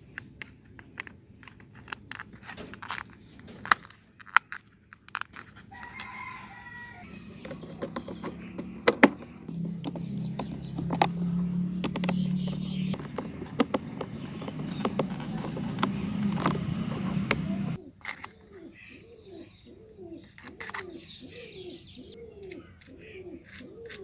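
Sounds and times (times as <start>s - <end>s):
rooster crowing: 5.7s - 7.8s
sharp clicks and taps: 7.4s - 18.3s.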